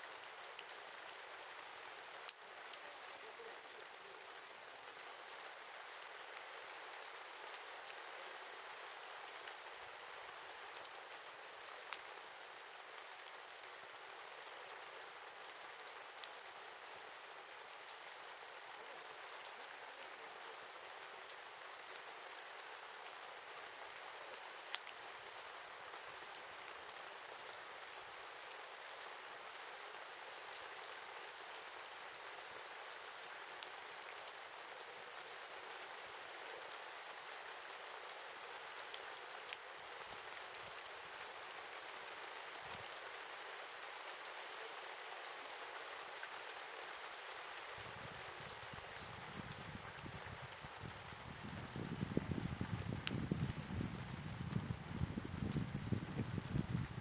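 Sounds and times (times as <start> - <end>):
campfire crackling and popping: 47.7 - 57.0.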